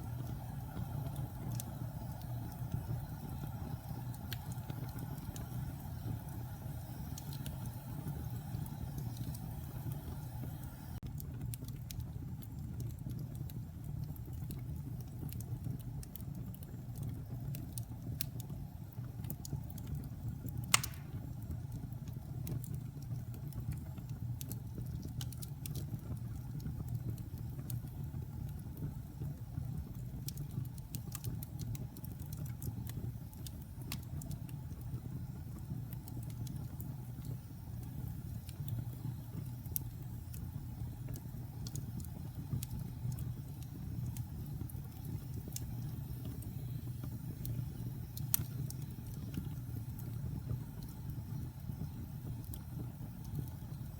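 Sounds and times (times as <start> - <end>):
fire burning with low rumble: 0.0 - 53.9
fire crackling: 0.0 - 53.9
loud sharp pop of fire: 20.7 - 21.3.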